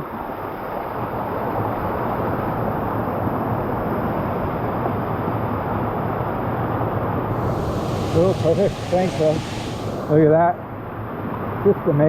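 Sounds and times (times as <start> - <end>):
water rushing: 7.3 - 10.6.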